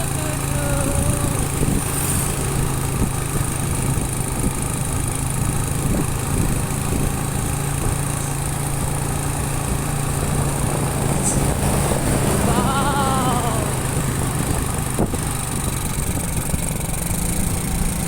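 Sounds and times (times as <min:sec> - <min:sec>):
rushing ride noise: 0:00.0 - 0:04.0, 0:06.5 - 0:16.3
small motorcycle engine running: 0:00.0 - 0:18.0.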